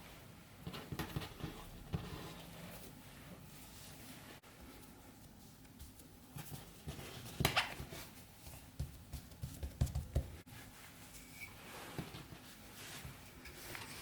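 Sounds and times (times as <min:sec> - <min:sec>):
hands knocking on kitchen surface: 0:08.8 - 0:10.4.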